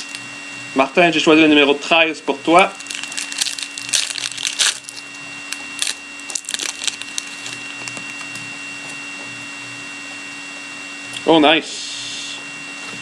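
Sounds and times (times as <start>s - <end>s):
wrapper torn and crinkled: 0.0s - 0.2s, 2.8s - 8.3s.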